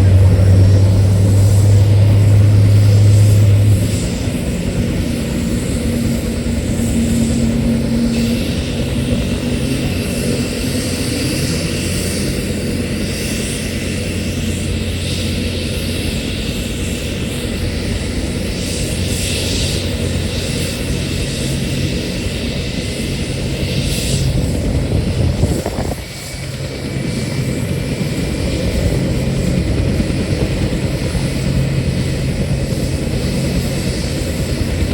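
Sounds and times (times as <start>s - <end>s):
helicopter engine and rotor hum: 0.0s - 34.9s
high turbine whine: 0.0s - 34.9s.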